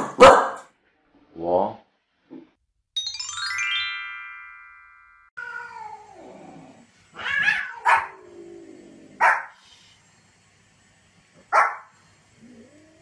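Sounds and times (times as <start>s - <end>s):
dog barking sharply: 0.0s - 0.7s, 11.5s - 11.9s
chime: 3.0s - 5.4s
cat yowling: 5.4s - 6.3s, 7.1s - 8.2s.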